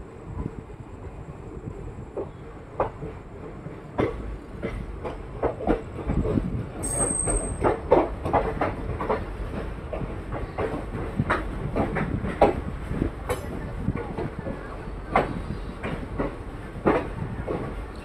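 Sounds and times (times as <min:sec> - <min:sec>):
train rumble: 0:00.0 - 0:18.0
train wheels knocking over rail joints: 0:03.9 - 0:17.8
high wheel squeal: 0:06.8 - 0:07.6.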